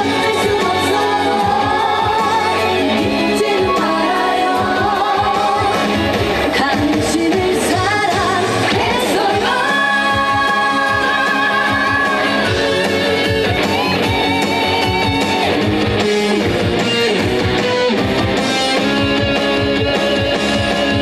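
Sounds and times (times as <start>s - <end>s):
woman singing with vibrato: 0.0s - 12.8s
electric guitar: 0.0s - 21.0s
steady drum beat: 0.0s - 21.0s.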